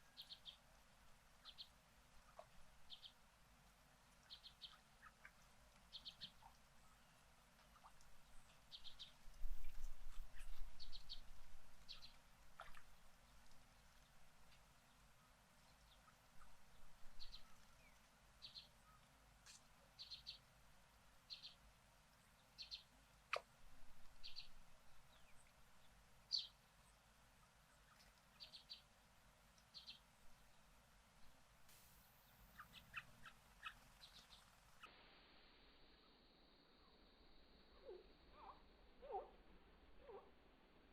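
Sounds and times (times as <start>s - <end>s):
small bird chirping: 0.0s - 0.6s, 1.4s - 1.7s, 2.3s - 3.2s, 4.2s - 12.8s, 15.8s - 20.4s, 22.6s - 23.4s, 24.2s - 25.5s, 26.3s - 26.6s, 27.8s - 28.9s, 29.7s - 30.0s, 31.9s - 35.0s, 36.8s - 39.4s.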